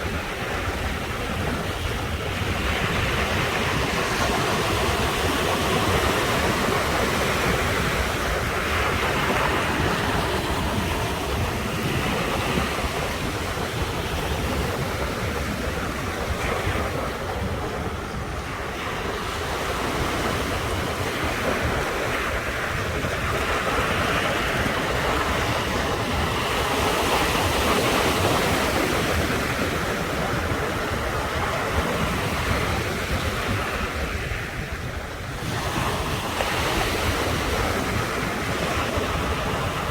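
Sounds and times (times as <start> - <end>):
ocean surf breaking on shore: 0.0 - 39.9.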